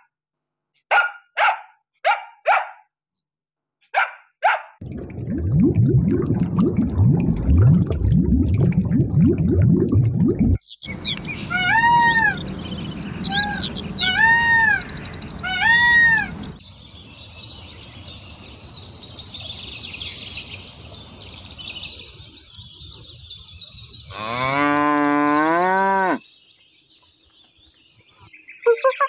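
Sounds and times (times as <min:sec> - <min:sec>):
faint high chirping: 0:10.8 - 0:16.6
peafowl calling: 0:10.9 - 0:16.6
cow mooing: 0:24.1 - 0:26.2.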